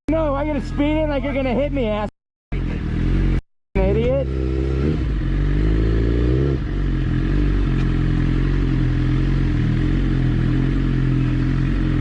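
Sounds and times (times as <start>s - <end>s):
motorcycle engine revving: 2.5s - 12.0s.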